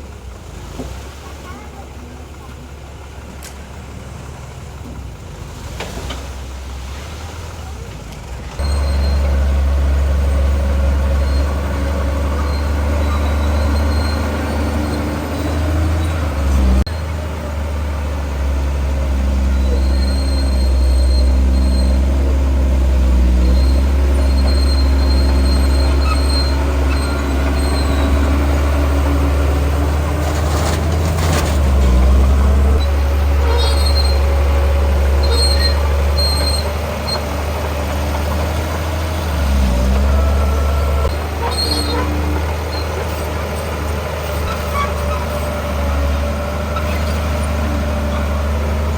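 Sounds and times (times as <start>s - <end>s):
heavy diesel machinery rumbling: 0.0s - 48.9s
high-pitched squeals: 8.6s - 16.7s
clanking: 19.2s - 39.1s.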